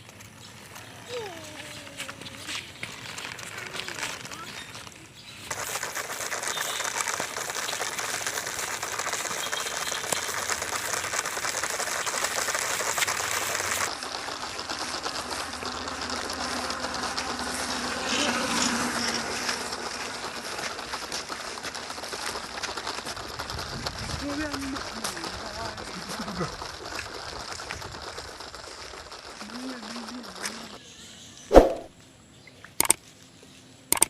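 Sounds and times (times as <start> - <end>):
noisy rushing haze: 31.5 - 31.9.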